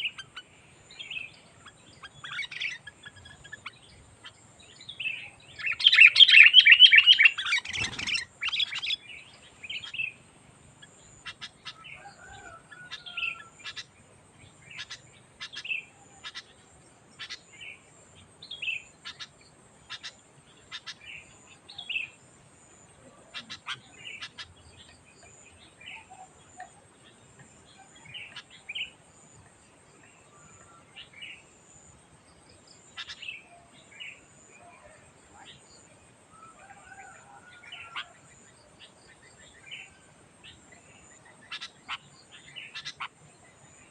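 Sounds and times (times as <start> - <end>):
bird chattering chirps: 1.1 - 9.1, 9.7 - 10.2, 10.8 - 12.1, 12.8 - 14.0, 14.7 - 16.6, 17.2 - 17.8, 18.7 - 21.3, 23.1 - 24.9, 32.9 - 33.5, 38.8 - 43.2.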